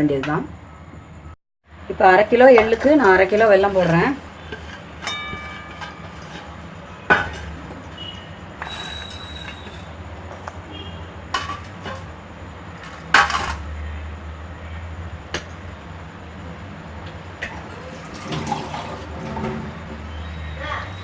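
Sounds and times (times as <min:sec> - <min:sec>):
metal utensils clanking: 0:02.3 - 0:10.1, 0:11.3 - 0:13.7, 0:17.4 - 0:20.2.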